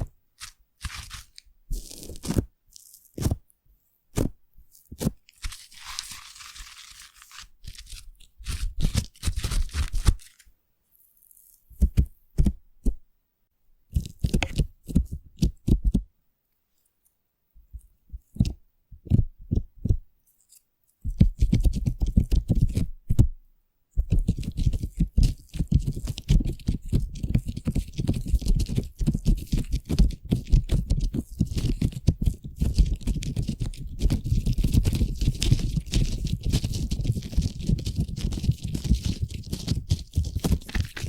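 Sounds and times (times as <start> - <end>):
foam crackling and squishing: 5.4 - 10.4, 24.4 - 41.0.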